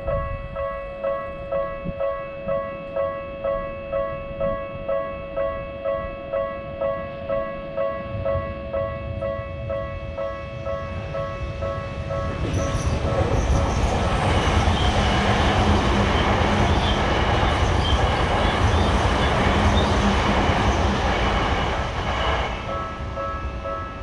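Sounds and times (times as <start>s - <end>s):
train wheels rumbling on rails: 6.7s - 24.0s.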